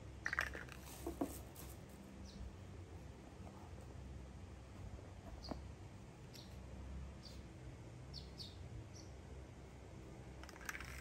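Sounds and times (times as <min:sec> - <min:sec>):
toy blocks clicking: 0:00.2 - 0:01.8, 0:10.4 - 0:11.0
faint bird chirps: 0:05.3 - 0:05.7, 0:08.1 - 0:09.2.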